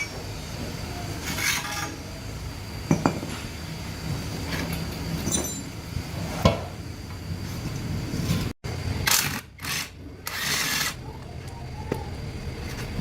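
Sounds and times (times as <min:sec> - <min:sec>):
steady low hum: 0:00.0 - 0:13.0
metal tools clinking and knocking: 0:05.2 - 0:05.7.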